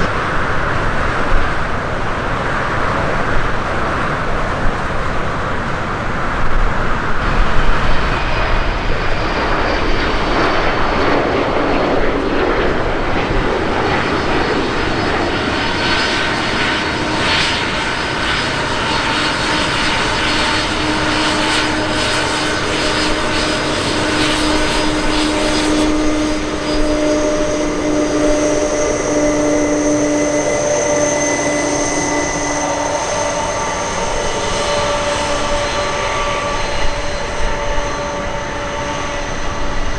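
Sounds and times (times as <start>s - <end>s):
jet engines running: 0.0s - 39.9s
steady whining tones: 0.0s - 39.9s.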